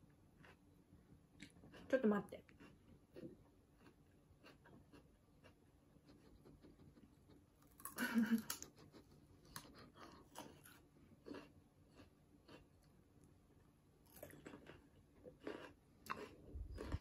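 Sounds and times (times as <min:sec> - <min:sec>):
person chewing raw celery: 0:00.2 - 0:00.8, 0:01.4 - 0:08.8, 0:09.4 - 0:17.0.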